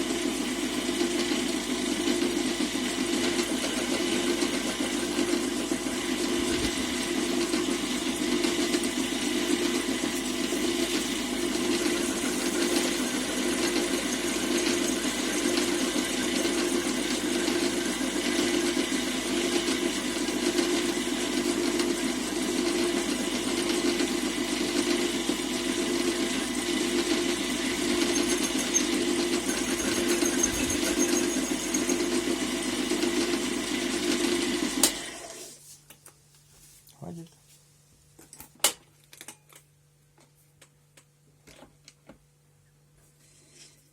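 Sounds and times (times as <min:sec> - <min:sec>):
metal lathe running: 0:26.4 - 0:34.8.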